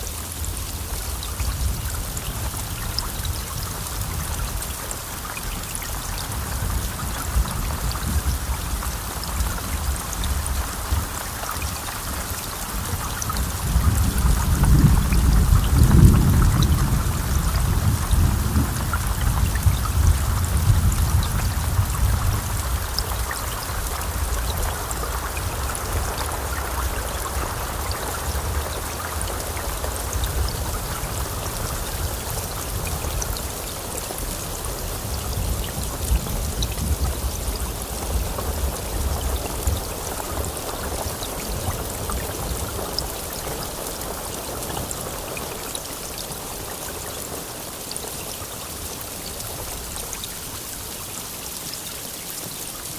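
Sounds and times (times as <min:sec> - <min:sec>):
heavy rain falling: 0:00.0 - 0:52.9
low thunder rumble: 0:05.9 - 0:45.4.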